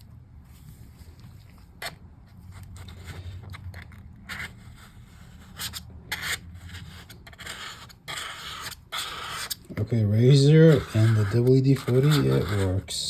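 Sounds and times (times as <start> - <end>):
razor blade scraping plastic: 2.6 - 9.7, 10.3 - 13.0.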